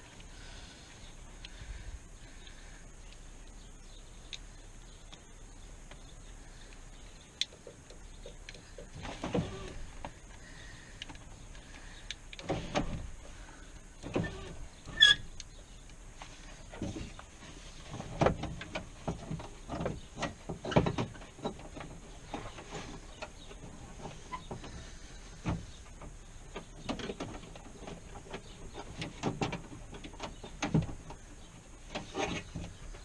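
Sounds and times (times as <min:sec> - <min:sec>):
rattling and clunking: 0:16.1 - 0:33.0.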